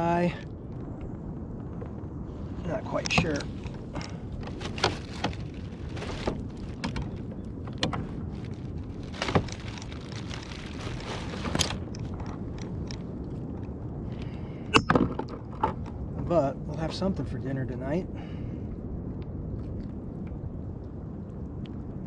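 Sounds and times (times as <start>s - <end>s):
water noise: 0.0s - 14.0s
wind noise: 0.0s - 22.0s
knocks and clicks on kayak hull: 3.0s - 12.4s.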